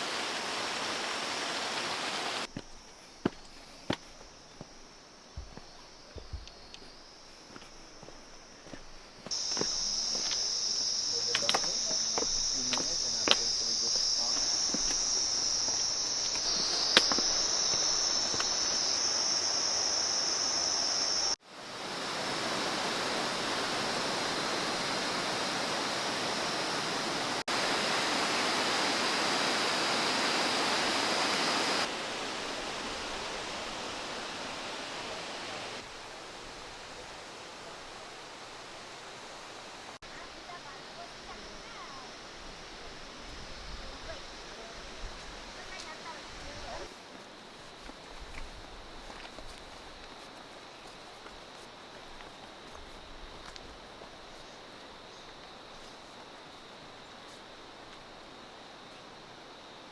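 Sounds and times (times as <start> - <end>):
flowing water rushing: 0.0 - 2.5, 9.3 - 43.2
high-pitched insect chorus: 0.0 - 38.4, 39.0 - 59.9.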